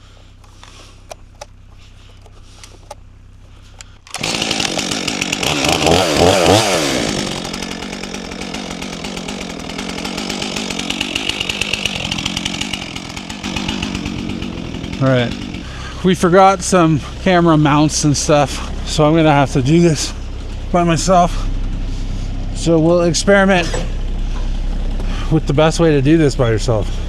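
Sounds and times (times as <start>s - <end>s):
low steady hum: 0.0s - 4.2s
chainsaw revving: 0.0s - 27.0s.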